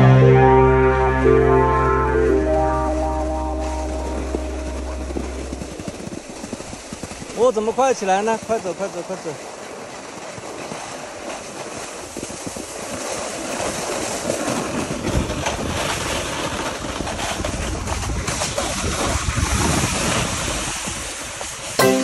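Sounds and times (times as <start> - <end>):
snowboard scraping over snow: 2.4 - 21.6
wind rushing over microphone: 14.6 - 21.6.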